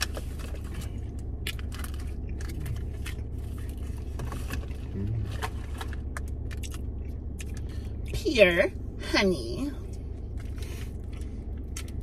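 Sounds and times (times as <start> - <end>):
chewing with mouth clicks: 0.0 - 8.2, 9.9 - 12.0
low hum inside car: 0.0 - 12.0
person humming mm: 4.9 - 5.3.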